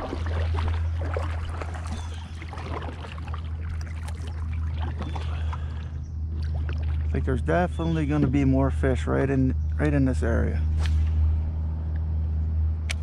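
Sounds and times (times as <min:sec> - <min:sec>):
paddle splashing water: 0:00.0 - 0:07.2
steady low hum: 0:00.0 - 0:13.0.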